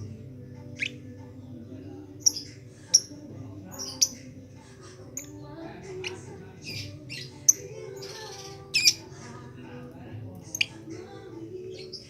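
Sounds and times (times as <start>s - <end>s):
lovebird chirping and squawking: 0.8s - 1.0s, 2.2s - 4.4s, 6.0s - 9.1s.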